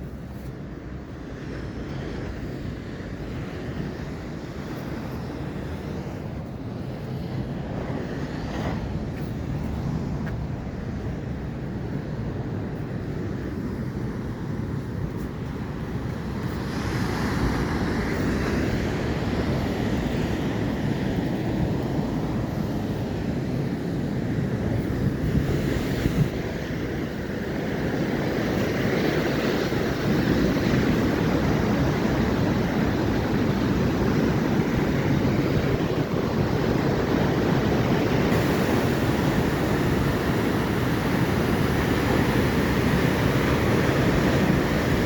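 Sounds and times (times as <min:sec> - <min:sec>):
ocean surf washing in: 0:00.0 - 0:45.0
wind rumbling on microphone: 0:00.0 - 0:45.0.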